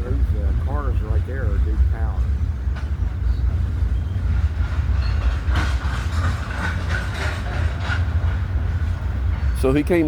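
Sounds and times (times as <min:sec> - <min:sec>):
train wheels rumbling on rails: 0:00.0 - 0:10.0
clacks and clatter: 0:04.3 - 0:09.7.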